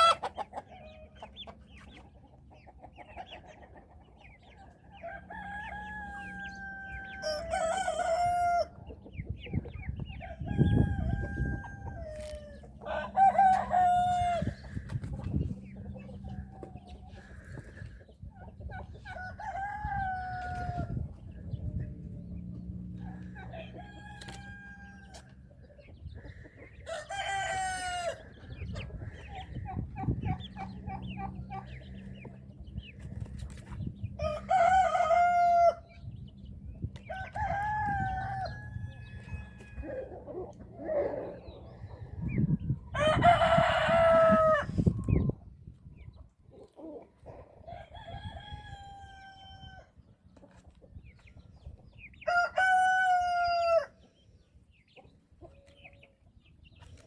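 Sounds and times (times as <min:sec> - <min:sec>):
roosters crowing: 0:00.0 - 0:01.2, 0:04.8 - 0:08.9, 0:10.0 - 0:18.1, 0:18.8 - 0:25.6, 0:26.2 - 0:32.8, 0:34.0 - 0:36.4, 0:37.0 - 0:45.3, 0:47.6 - 0:50.1, 0:52.2 - 0:54.0
poultry calls and clucks: 0:00.0 - 0:57.0.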